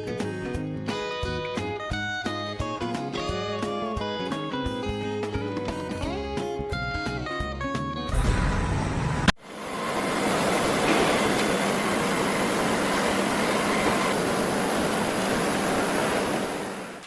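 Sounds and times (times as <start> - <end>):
steady rushing noise: 9.3 - 17.0.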